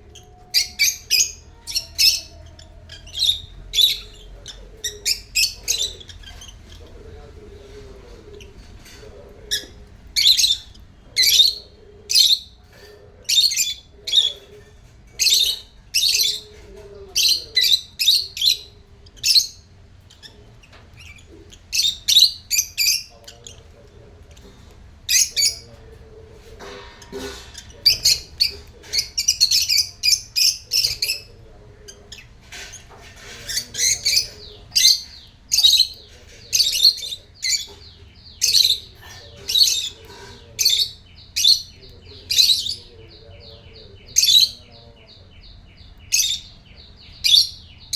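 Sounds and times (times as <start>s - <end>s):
lovebirds chirping and squawking: 0.0s - 47.9s.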